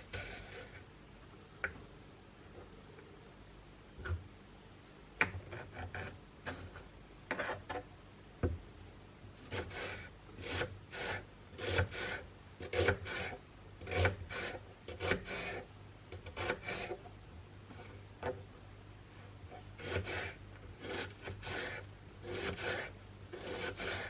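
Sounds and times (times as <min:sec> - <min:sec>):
rubbing and scraping strokes: 0:19.8 - 0:24.0.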